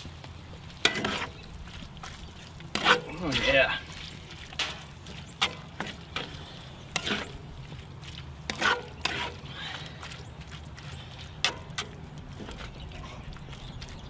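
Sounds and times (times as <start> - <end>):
spatula scraping a pan: 0.8 - 1.5, 2.6 - 9.5.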